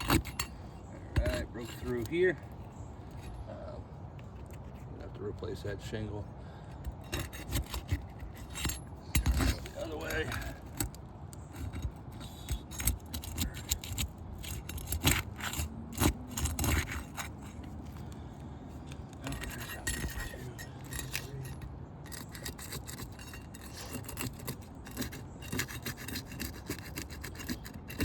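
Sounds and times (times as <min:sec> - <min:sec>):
sharp clicks and scrapes: 0:00.0 - 0:03.4, 0:04.1 - 0:05.7, 0:06.7 - 0:28.0
roof shingles scraping and crackling: 0:06.8 - 0:28.0.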